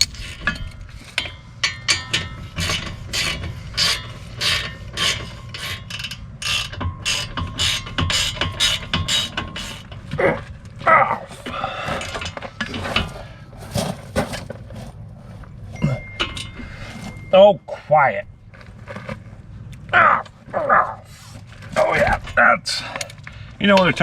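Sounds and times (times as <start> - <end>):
ratchet wrench clicking: 1.8 - 9.8.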